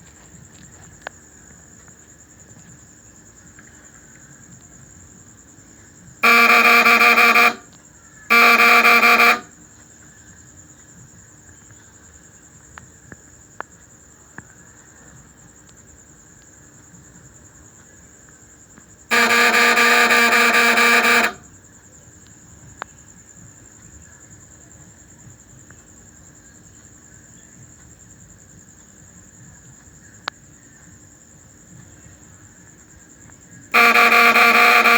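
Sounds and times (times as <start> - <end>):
transformer buzzing loudly: 6.2 - 7.6, 8.3 - 9.5, 19.1 - 21.4, 33.8 - 34.9.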